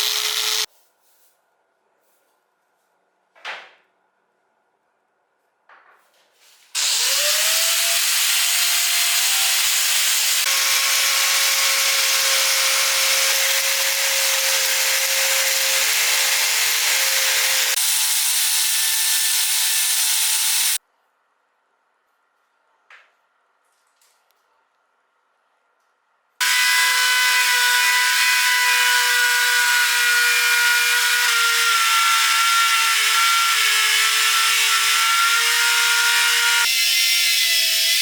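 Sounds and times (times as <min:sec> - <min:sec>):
power tool grinding metal: 0:00.0 - 0:00.7, 0:06.8 - 0:20.8, 0:26.4 - 0:38.0.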